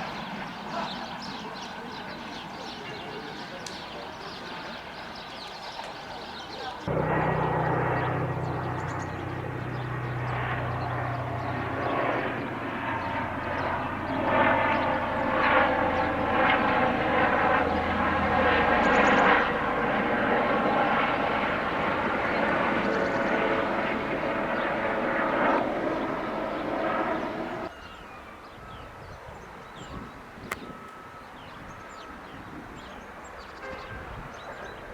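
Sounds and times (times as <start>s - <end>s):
electric locomotive humming: 6.9s - 19.7s.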